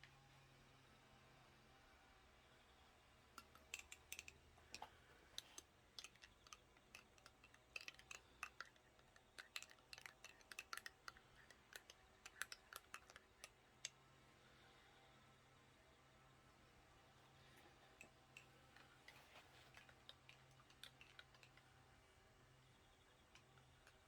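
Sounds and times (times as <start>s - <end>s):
faint sharp clicks and crackles: 3.3s - 14.0s, 17.3s - 24.0s.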